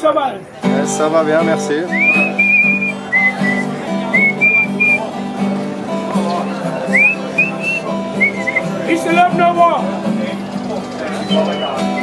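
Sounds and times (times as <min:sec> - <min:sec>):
acoustic guitar chords: 0:00.5 - 0:12.0
person whistling a tune: 0:01.9 - 0:05.0, 0:06.9 - 0:08.7, 0:11.3 - 0:12.0.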